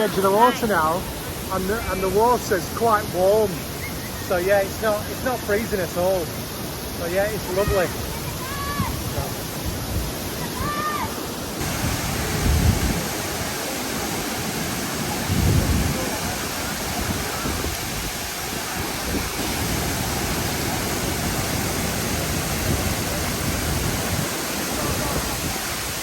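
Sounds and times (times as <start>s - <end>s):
waterfall roaring: 0.0s - 26.0s
wind buffeting microphone: 11.6s - 26.0s.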